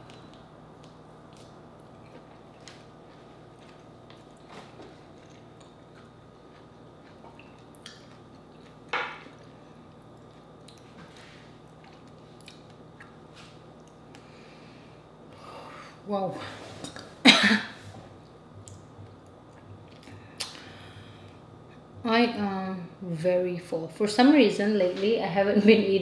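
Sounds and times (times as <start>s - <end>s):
person chewing juicy orange: 0.0s - 14.3s
faint steady hum: 0.0s - 26.0s.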